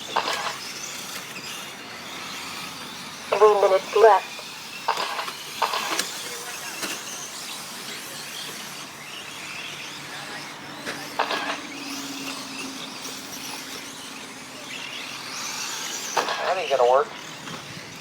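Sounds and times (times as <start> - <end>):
rc truck motors whining: 0.0 - 18.0
tyres hissing on track: 2.2 - 5.8.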